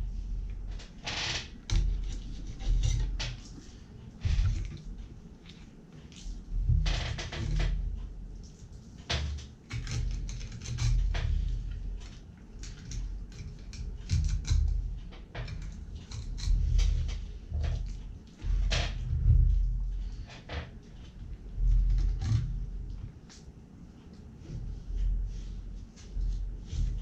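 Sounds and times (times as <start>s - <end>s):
knife cutting fish on a plastic board: 9.2s - 11.5s.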